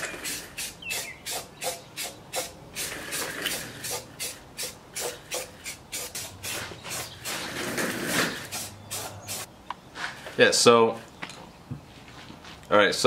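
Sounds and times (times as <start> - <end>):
aerosol can spraying in hissing bursts: 0.1 - 7.4, 8.3 - 9.5.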